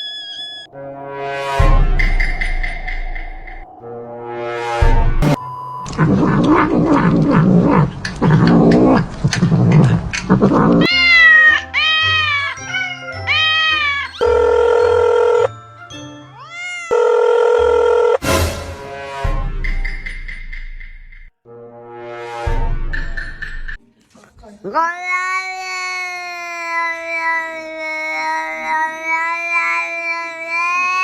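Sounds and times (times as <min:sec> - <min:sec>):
cat meowing: 0:10.8 - 0:15.4, 0:16.3 - 0:17.0, 0:24.7 - 0:31.0.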